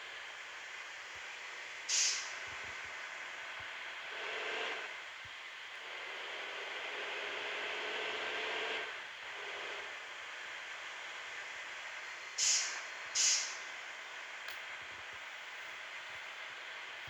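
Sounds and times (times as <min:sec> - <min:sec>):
air release hiss: 0:01.9 - 0:02.3, 0:12.4 - 0:13.6.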